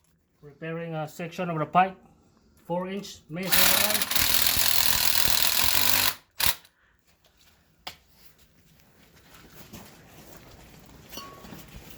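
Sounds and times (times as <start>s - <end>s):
loud power tool running: 3.4s - 6.7s.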